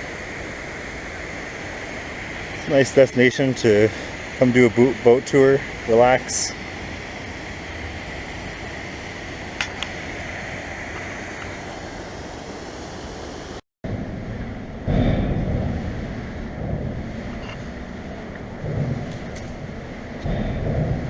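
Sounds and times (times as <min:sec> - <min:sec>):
wind buffeting microphone: 0:00.0 - 0:21.0
low rumble: 0:13.8 - 0:21.0.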